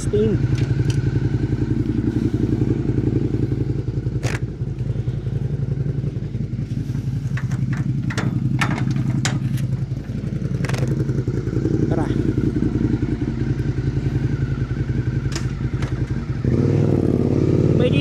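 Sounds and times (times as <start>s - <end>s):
motorcycle engine idling: 0.0s - 18.0s
sharp clicks and knocks: 0.5s - 1.1s, 7.2s - 11.0s, 15.3s - 16.2s.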